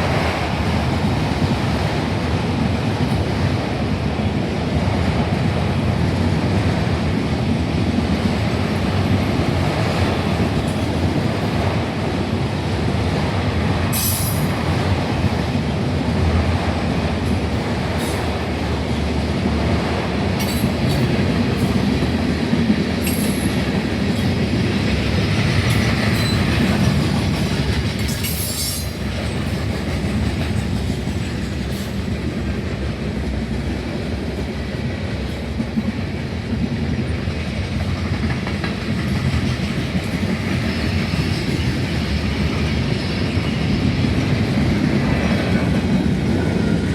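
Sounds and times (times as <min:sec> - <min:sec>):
steel wheels rumbling on rail: 0:00.0 - 0:46.9.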